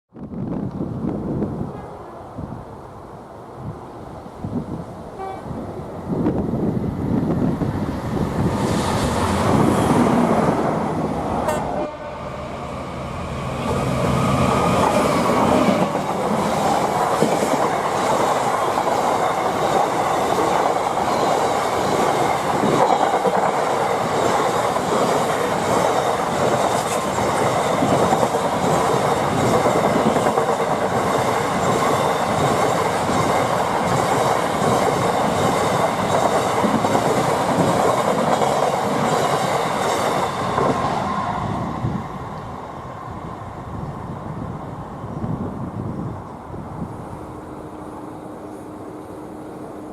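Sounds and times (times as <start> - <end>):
train wheels clattering on rails: 14.5 - 41.0.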